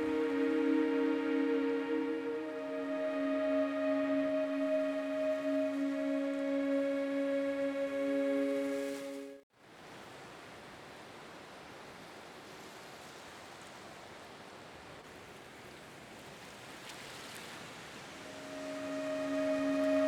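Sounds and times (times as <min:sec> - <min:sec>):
background music: 0:00.0 - 0:09.4, 0:18.3 - 0:20.0.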